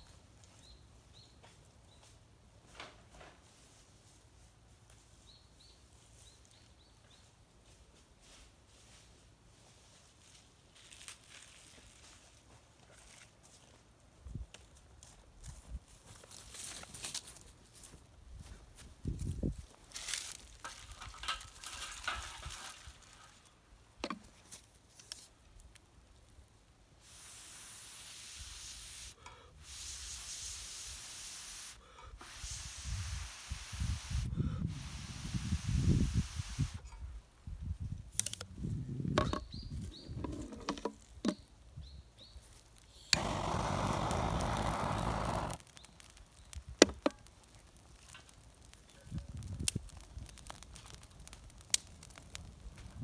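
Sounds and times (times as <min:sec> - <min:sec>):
bursts of hissing: 0:27.0 - 0:36.8, 0:43.2 - 0:46.0.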